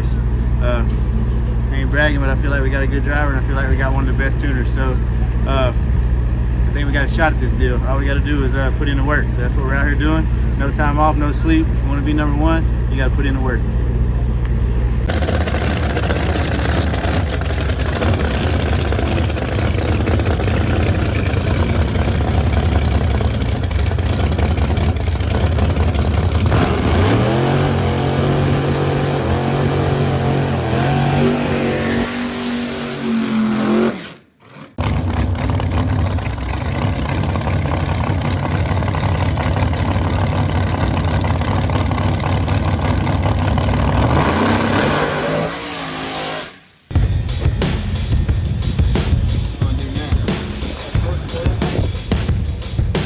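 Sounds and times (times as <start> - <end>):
race car engine at high revs: 15.0 - 46.6.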